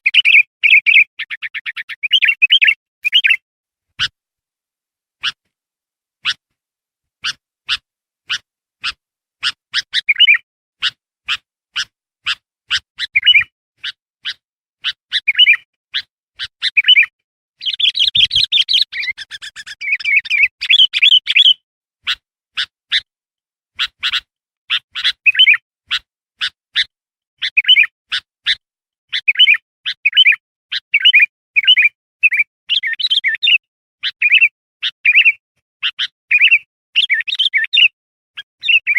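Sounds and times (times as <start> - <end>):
bulbul chirping and warbling: 7.2 - 11.4, 12.2 - 22.7, 23.8 - 25.6.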